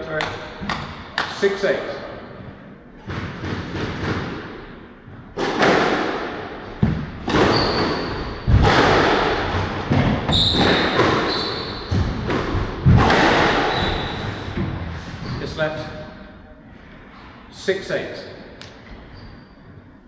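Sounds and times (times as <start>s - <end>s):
squash ball hits: 3.0s - 4.7s, 5.3s - 14.8s.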